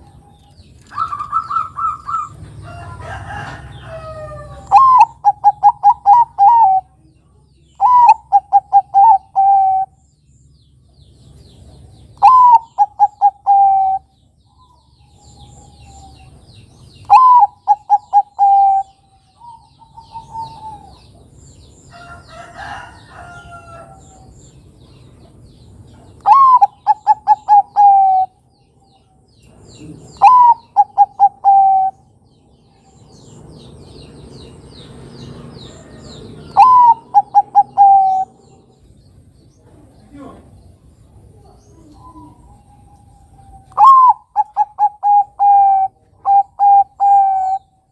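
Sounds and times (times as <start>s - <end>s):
small birds chirping faintly: 0.0s - 47.9s
dove cooing: 0.9s - 2.4s, 3.0s - 7.0s, 7.8s - 10.0s, 12.2s - 14.1s, 17.0s - 21.2s, 26.2s - 28.4s, 29.8s - 32.1s, 35.7s - 38.8s, 41.3s - 47.8s
faint bird calling: 7.8s - 10.0s, 12.2s - 16.3s, 17.0s - 21.0s, 26.2s - 28.4s, 29.8s - 32.1s, 36.4s - 38.6s, 41.4s - 47.9s.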